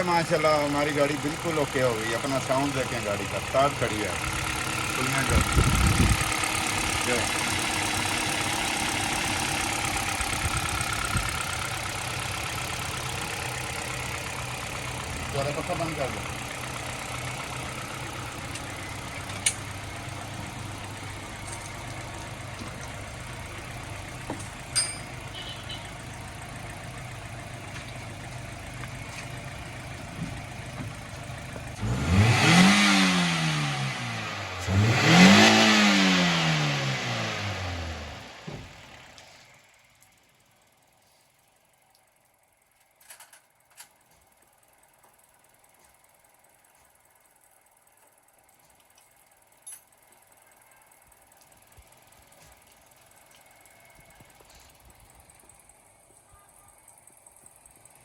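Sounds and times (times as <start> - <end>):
car engine idling: 0.0 - 42.9, 43.6 - 58.0.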